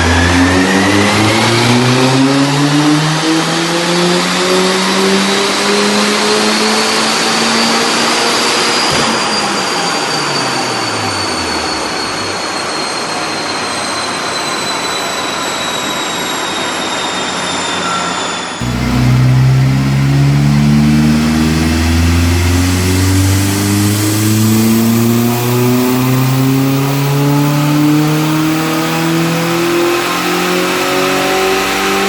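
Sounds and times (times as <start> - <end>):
engine revving at full throttle: 18.6 - 32.0
high whine falling in pitch: 18.6 - 32.0.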